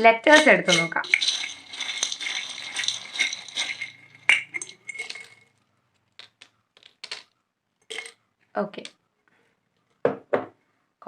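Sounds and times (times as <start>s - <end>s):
letter tiles rattling: 0.0s - 7.3s, 7.9s - 8.2s.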